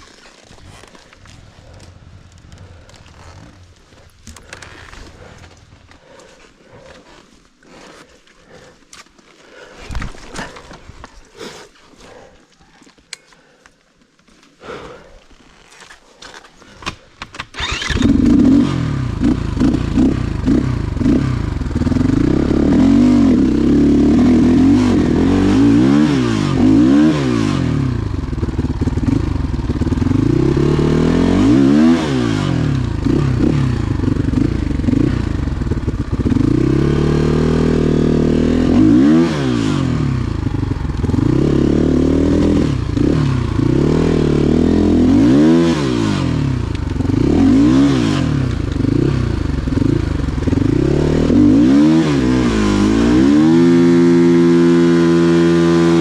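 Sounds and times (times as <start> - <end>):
motorcycle engine starting: 1.0 - 7.2, 16.7 - 56.0
motorcycle engine revving: 17.3 - 56.0.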